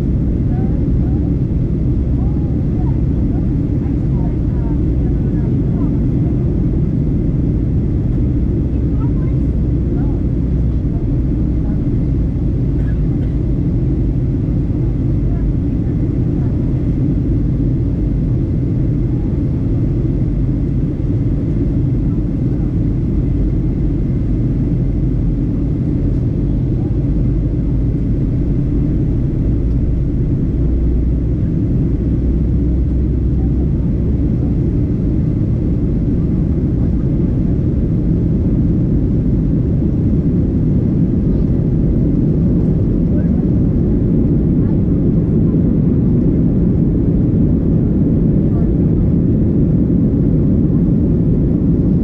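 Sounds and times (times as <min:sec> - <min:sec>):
airplane cabin engine rumble: 0:00.0 - 0:52.0.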